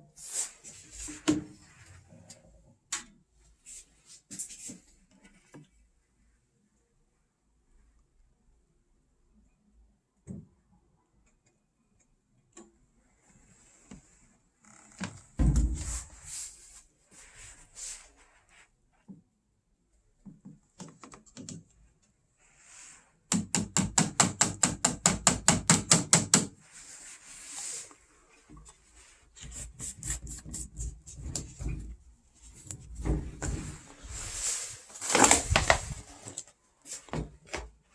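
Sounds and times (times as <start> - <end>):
handling knocks and rubbing: 15.4 - 16.5, 28.4 - 37.7.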